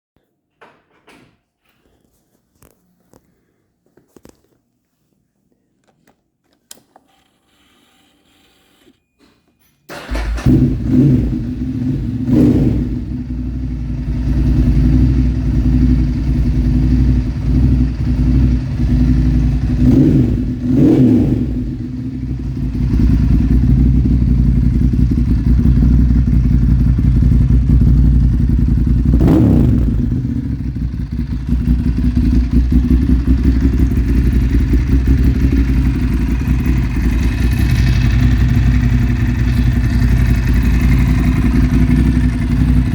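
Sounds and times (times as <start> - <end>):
motorcycle engine idling and revving: 9.9 - 42.9.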